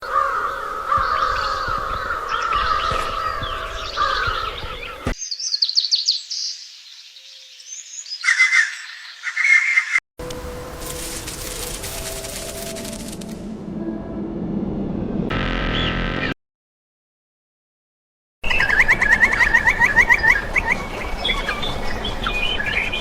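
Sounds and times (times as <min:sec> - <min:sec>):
songbirds chirping and singing: 0:00.0 - 0:10.0, 0:18.5 - 0:23.0.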